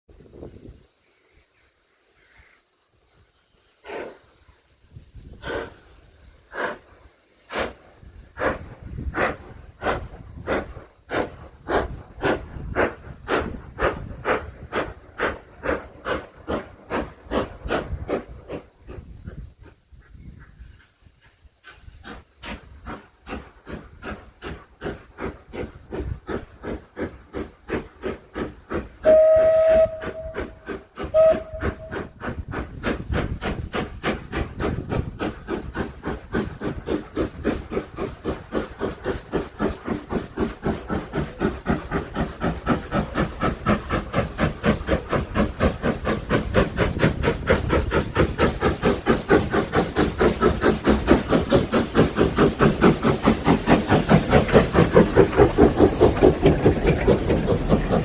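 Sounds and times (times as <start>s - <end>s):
steam engine exhaust chuffs: 2.1s - 58.0s
steam whistle: 29.0s - 31.9s.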